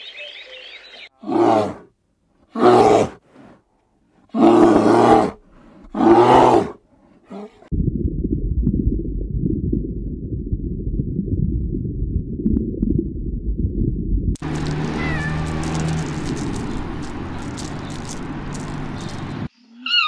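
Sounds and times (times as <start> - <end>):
low rumble: 7.7 - 19.5.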